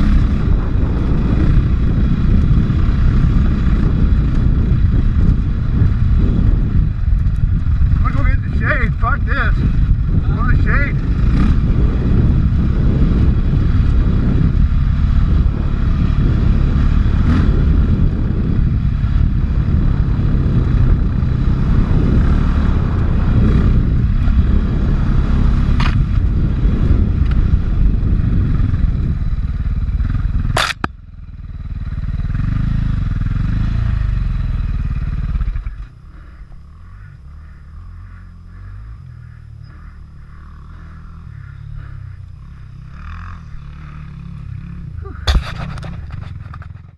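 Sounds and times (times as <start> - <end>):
dirt bike engine rumbling: 0.0 - 46.9
sharp click: 30.5 - 31.0.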